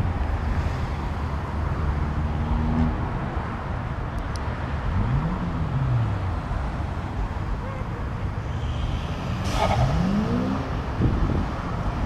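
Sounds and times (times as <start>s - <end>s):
car engines passing: 0.0s - 12.0s
road noise: 0.0s - 12.0s
car engine revving: 4.9s - 6.6s, 9.1s - 10.8s.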